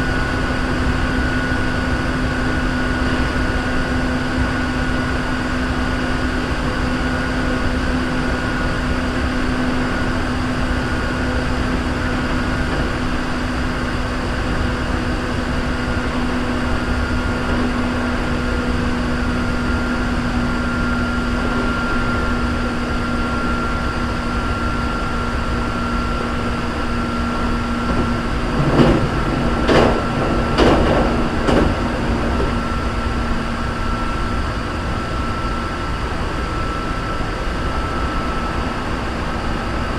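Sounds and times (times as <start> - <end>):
train hum: 0.0 - 39.9
train wheels rumbling on rail: 0.0 - 39.9
loud knocks: 27.8 - 32.7.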